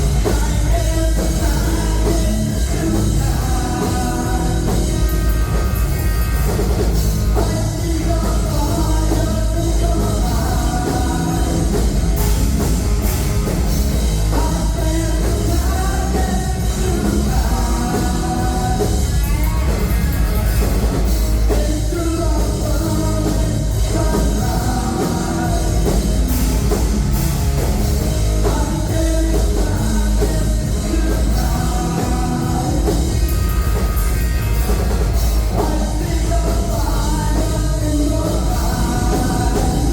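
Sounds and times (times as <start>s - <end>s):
person singing: 0.0s - 5.8s, 6.4s - 12.6s, 14.2s - 27.0s, 28.2s - 34.2s, 35.3s - 39.9s
live rock band playing: 0.0s - 39.9s.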